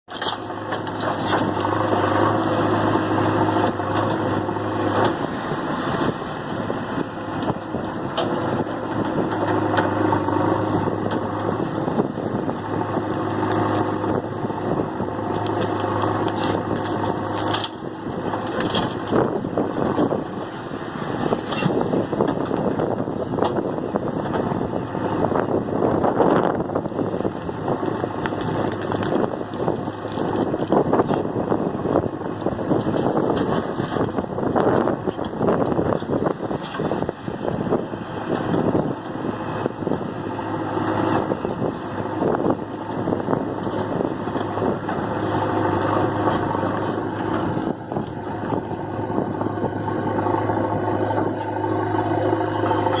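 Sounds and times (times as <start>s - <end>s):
diesel engine under load: 0.0s - 53.0s
soil and stones clattering: 0.1s - 5.3s, 15.1s - 20.7s, 27.8s - 37.0s, 42.8s - 53.0s.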